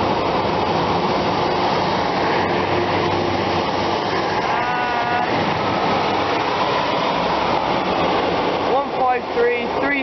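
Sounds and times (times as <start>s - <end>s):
diesel train engines running: 0.0s - 10.0s
train wheel and rail noise: 0.0s - 10.0s
high-pitched squeal: 4.1s - 5.6s.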